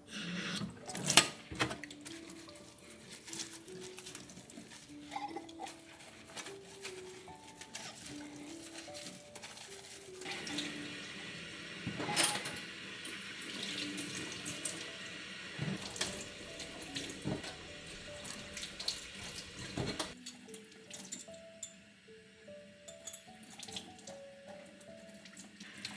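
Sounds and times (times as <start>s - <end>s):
tap running into a sink: 11.8s - 20.2s.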